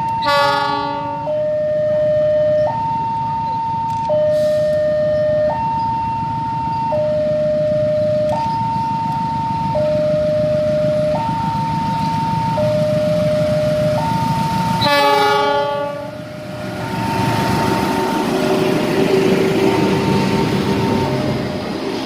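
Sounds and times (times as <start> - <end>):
two-tone level crossing alarm: 0.0 - 16.4
train passing rumble: 0.0 - 22.0
locomotive horn blast: 0.2 - 1.3, 14.8 - 16.2.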